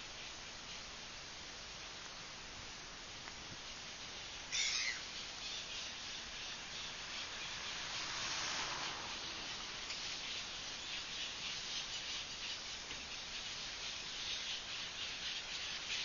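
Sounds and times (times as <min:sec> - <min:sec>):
background hiss: 0:00.0 - 0:16.0
bird loud call: 0:04.5 - 0:06.0
high bird chirping: 0:04.5 - 0:07.9.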